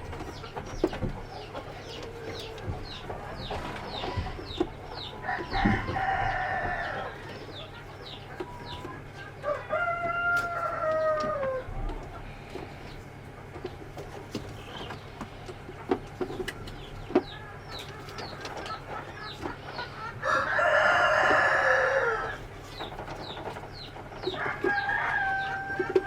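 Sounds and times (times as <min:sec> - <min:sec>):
chickens clucking: 0:00.0 - 0:26.0
rooster crowing: 0:05.2 - 0:07.3, 0:09.3 - 0:11.8, 0:20.2 - 0:22.4, 0:24.3 - 0:26.0.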